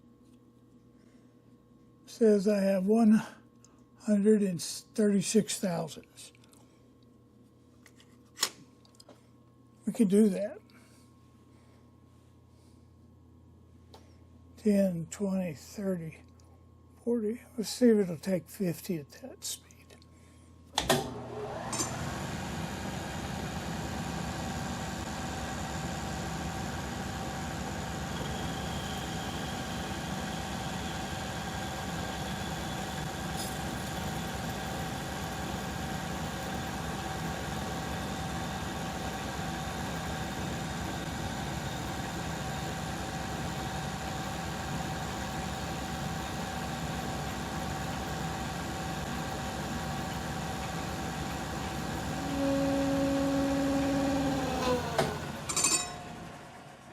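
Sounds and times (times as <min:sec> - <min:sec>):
lathe starting clunk: 0:20.8 - 0:22.2, 0:52.1 - 0:56.5
metal lathe running with whine: 0:21.1 - 0:56.9.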